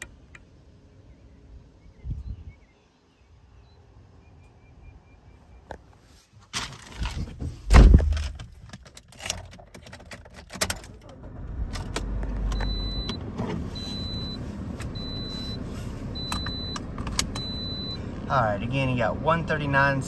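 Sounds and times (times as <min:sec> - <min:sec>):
heavy thump: 0:07.6 - 0:08.4
car engine starting and idling: 0:09.2 - 0:20.0
dashboard warning chime beeping: 0:12.5 - 0:19.0.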